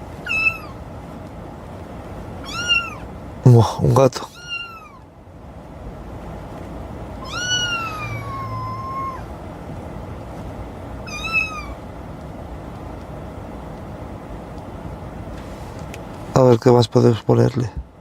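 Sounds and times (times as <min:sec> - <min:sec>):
recorded cat meows through speakers: 0:02.4 - 0:03.0, 0:07.2 - 0:09.3, 0:11.0 - 0:11.8.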